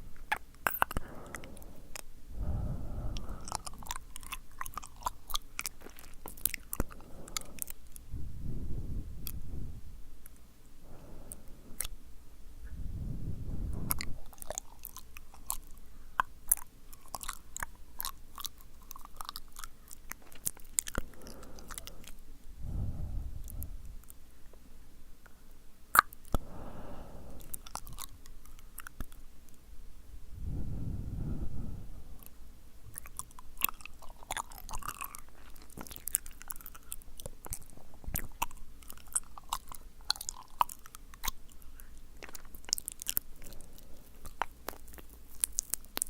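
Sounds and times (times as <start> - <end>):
wet lip and tongue clicks: 0.2 - 8.1, 11.2 - 12.0, 13.7 - 22.2, 23.0 - 24.2, 25.2 - 26.4, 27.4 - 29.6, 32.2 - 46.0.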